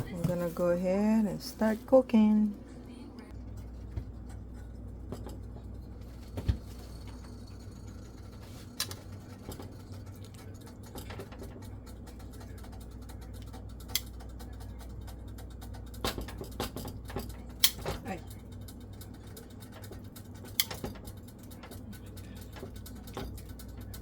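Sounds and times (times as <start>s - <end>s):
kitchenware clicks and knocks: 15.6s - 18.1s.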